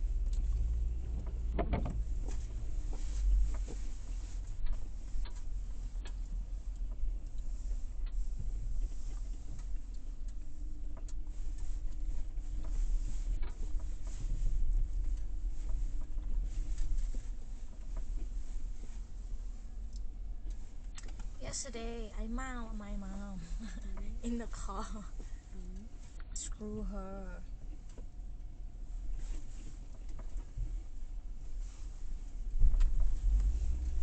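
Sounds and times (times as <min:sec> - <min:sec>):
car road noise rumble: 0:00.0 - 0:34.0
faint ticks and clicks: 0:00.2 - 0:26.7.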